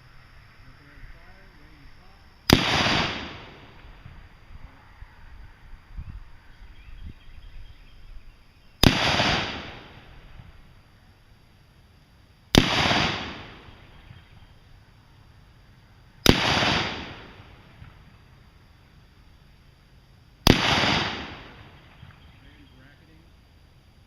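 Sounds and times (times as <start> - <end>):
gunshots: 2.5 - 3.8, 8.8 - 10.1, 12.5 - 13.8, 16.2 - 17.4, 20.5 - 21.8.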